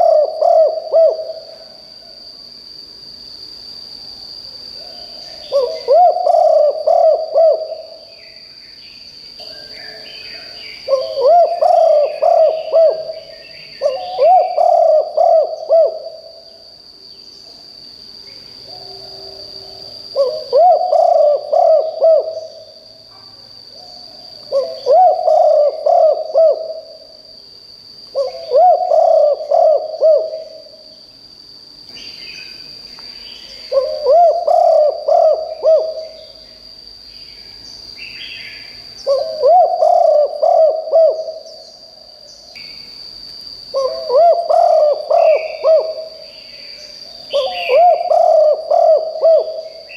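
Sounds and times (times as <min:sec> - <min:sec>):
dove cooing: 0:00.0 - 0:01.8, 0:04.8 - 0:08.1, 0:10.9 - 0:16.4, 0:18.7 - 0:22.7, 0:24.5 - 0:27.1, 0:28.1 - 0:30.8, 0:33.6 - 0:36.4, 0:39.0 - 0:41.6, 0:43.7 - 0:46.6, 0:47.3 - 0:49.9
faint bird chirps: 0:04.8 - 0:17.6, 0:43.7 - 0:49.9.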